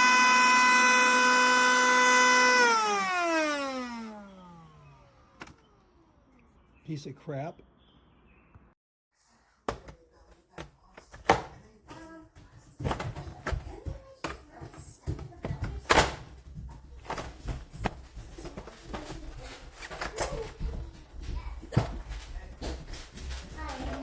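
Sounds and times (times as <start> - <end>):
knocks and thuds: 11.0 - 19.3.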